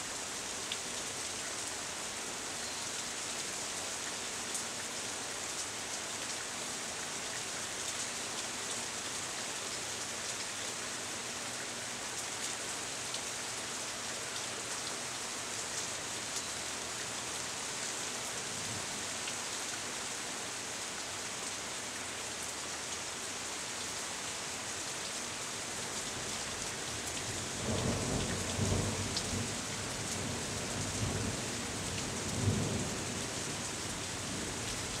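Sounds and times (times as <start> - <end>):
rain shower hissing: 26.1 - 35.0.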